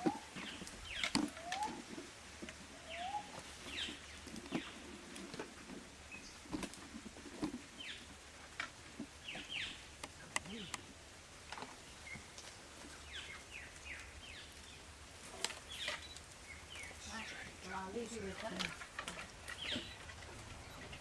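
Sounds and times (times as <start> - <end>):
birds chirping and whistling: 0.0 - 2.0, 2.7 - 4.9, 9.2 - 10.8, 11.9 - 14.8, 15.6 - 17.5, 19.4 - 21.0.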